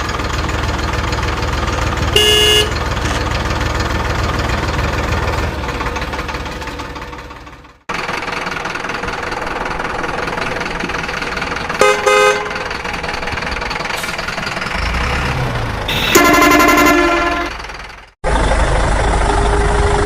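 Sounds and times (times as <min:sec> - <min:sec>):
vehicle engine running: 0:00.0 - 0:20.0
vehicle horn toots: 0:02.1 - 0:02.8, 0:11.8 - 0:12.7, 0:15.9 - 0:17.6.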